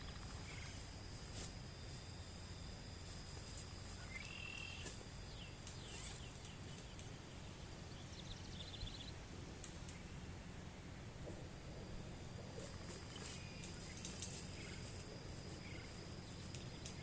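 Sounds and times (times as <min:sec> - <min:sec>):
bird chirp: 0:00.0 - 0:00.8, 0:03.9 - 0:09.2
insects droning high-pitched: 0:00.0 - 0:17.0.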